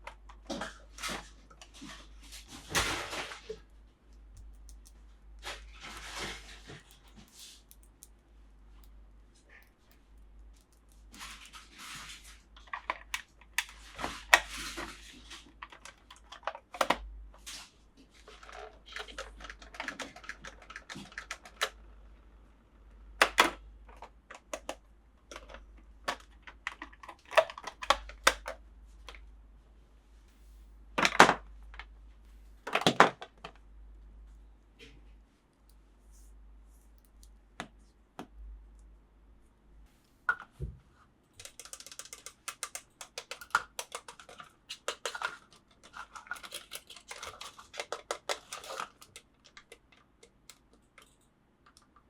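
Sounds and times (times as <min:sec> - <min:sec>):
plastic parts clicking: 0:04.1 - 0:08.2, 0:18.3 - 0:21.9, 0:23.2 - 0:29.2, 0:41.4 - 0:52.0
plastic clacks: 0:18.2 - 0:21.9, 0:23.2 - 0:29.2, 0:41.4 - 0:52.0
packaging crinkling: 0:41.4 - 0:49.7.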